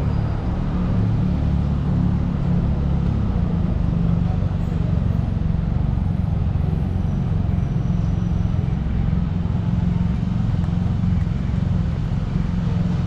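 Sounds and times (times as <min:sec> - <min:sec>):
deep city rumble: 0:00.0 - 0:13.0.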